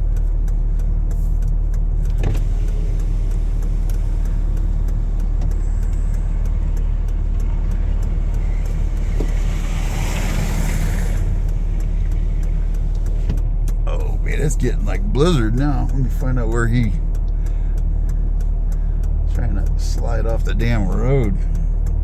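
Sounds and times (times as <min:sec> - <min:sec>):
faint regular ticking: 0:00.0 - 0:22.0
vehicle engine droning: 0:00.0 - 0:22.0.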